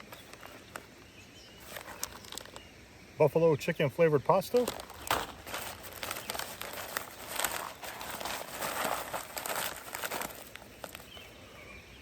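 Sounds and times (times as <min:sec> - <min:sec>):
food packets crinkling: 0:01.6 - 0:02.7, 0:04.5 - 0:11.3.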